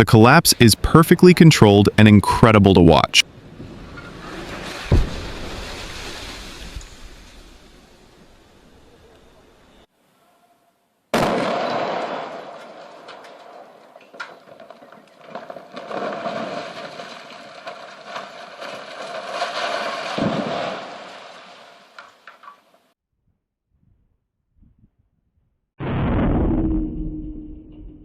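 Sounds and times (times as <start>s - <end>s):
rumble of collapsing concrete: 3.2s - 8.3s, 11.9s - 22.6s
demolition blast: 3.3s - 7.9s, 11.1s - 22.2s, 25.8s - 28.0s.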